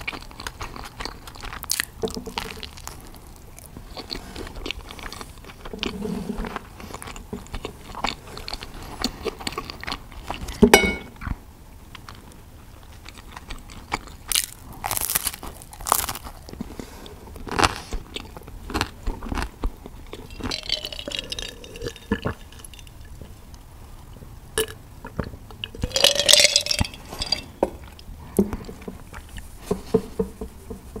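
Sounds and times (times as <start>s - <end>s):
chewing crisp pizza crust: 0.0s - 10.6s, 11.2s - 30.0s.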